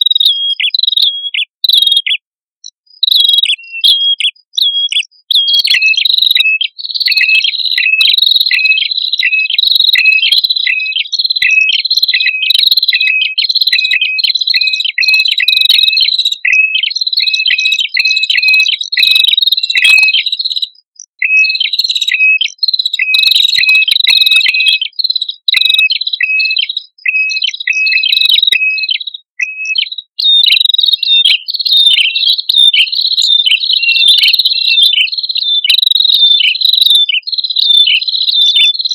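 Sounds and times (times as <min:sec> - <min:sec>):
birds calling in high chirps: 0:00.0 - 0:38.9.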